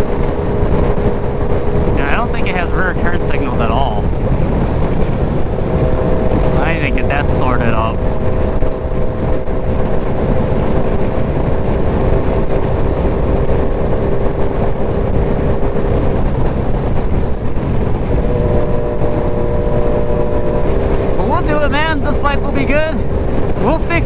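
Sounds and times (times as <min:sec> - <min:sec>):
motorcycle engine cruising: 0:00.0 - 0:24.0
wind rushing over helmet mic: 0:00.0 - 0:24.0.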